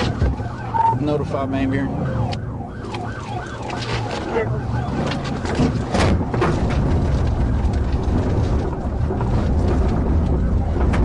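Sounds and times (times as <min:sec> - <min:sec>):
siren warbling: 0:00.0 - 0:05.9
car engine and road rumble: 0:00.0 - 0:11.0.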